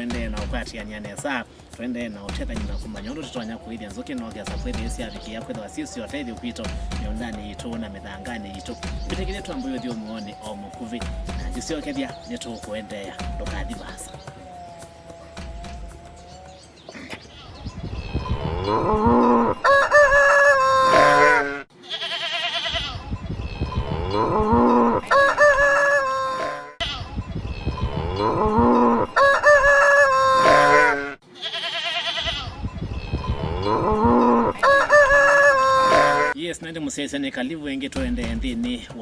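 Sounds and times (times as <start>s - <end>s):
farmyard fowl calls: 18.3s - 23.0s, 23.8s - 27.1s, 27.8s - 32.6s, 33.3s - 36.4s
rooster crowing: 19.5s - 21.6s, 25.0s - 26.8s, 29.0s - 31.1s, 34.5s - 36.4s.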